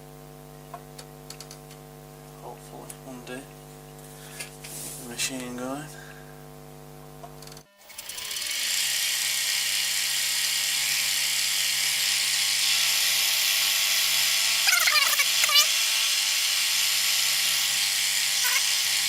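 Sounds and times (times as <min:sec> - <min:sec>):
milling machine humming: 0:07.2 - 0:19.0.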